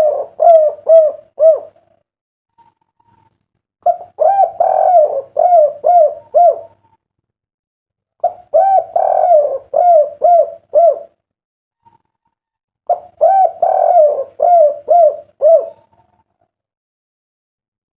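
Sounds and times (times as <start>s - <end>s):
dove cooing: 0.0s - 2.0s, 3.8s - 7.0s, 8.2s - 11.2s, 12.9s - 16.4s.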